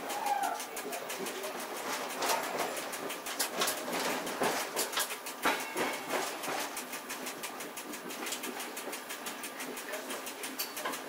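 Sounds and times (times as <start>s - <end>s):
train rolling with clicking and rattling: 0.0s - 11.0s.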